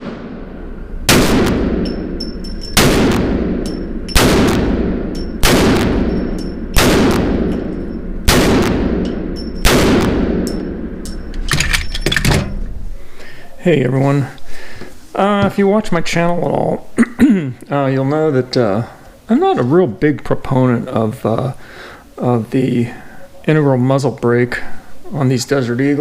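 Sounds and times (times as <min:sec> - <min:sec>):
pistol shots with echoing tail: 0:00.0 - 0:11.3.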